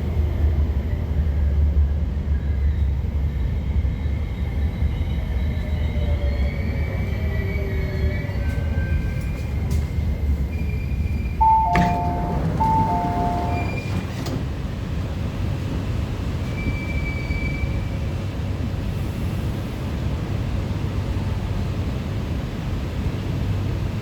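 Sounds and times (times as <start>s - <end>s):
train equipment rumble: 8.3s - 22.3s.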